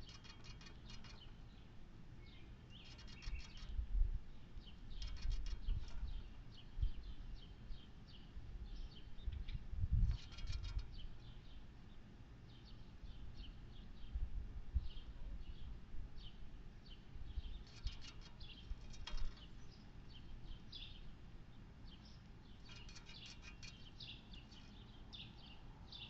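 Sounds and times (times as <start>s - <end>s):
small birds chirping: 0.0s - 14.2s, 14.8s - 26.0s.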